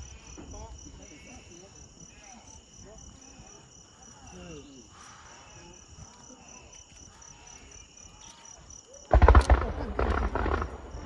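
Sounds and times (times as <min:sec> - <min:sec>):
crickets chirping: 0:00.0 - 0:11.0
faint distant voices: 0:00.0 - 0:11.0.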